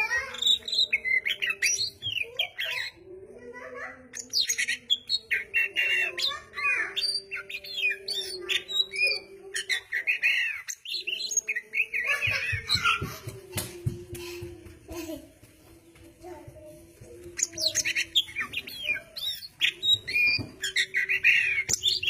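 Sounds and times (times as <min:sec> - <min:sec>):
bird singing whistles and chirps: 0:17.4 - 0:22.0.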